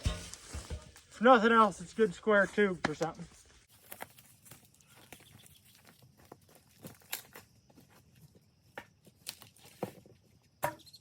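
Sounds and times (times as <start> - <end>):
dry brush crackling underfoot: 0.0 - 8.3.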